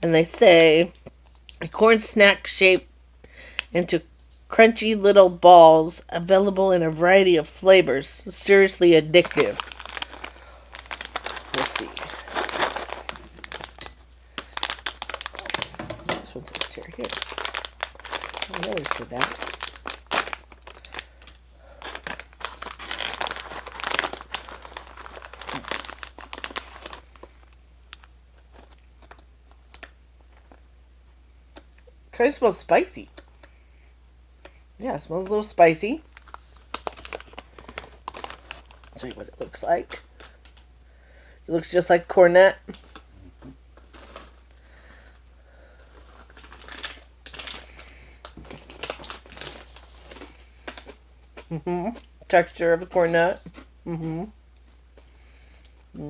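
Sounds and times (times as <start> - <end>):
snack bag crinkling: 9.1 - 30.6, 35.2 - 40.7, 43.8 - 52.1
crunchy snack being chewed: 9.3 - 13.8.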